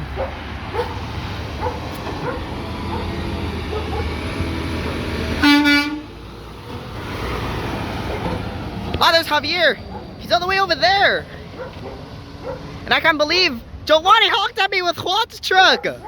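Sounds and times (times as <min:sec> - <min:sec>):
air horn blast: 0:05.4 - 0:06.2.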